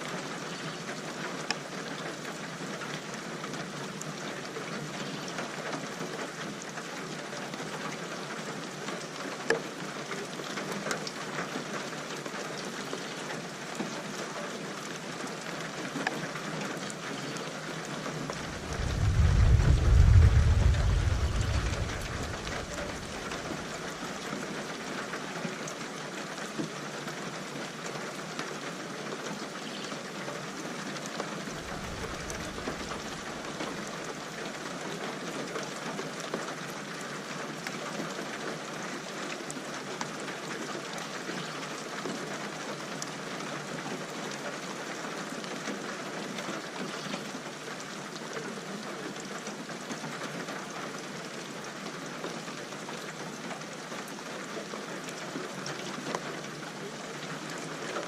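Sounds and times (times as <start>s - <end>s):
steady rain falling: 0.0s - 58.0s
distant thunder rumble: 18.3s - 24.0s, 31.6s - 33.7s.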